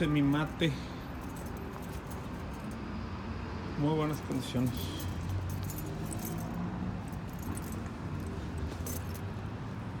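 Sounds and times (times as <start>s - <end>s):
keys jingling: 1.1s - 2.8s, 4.6s - 9.5s.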